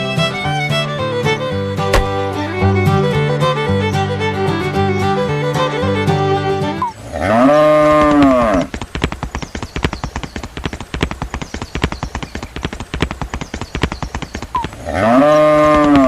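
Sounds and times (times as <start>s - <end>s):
cow mooing: 7.1s - 8.7s, 14.8s - 16.0s
clopping clicks: 7.8s - 16.0s.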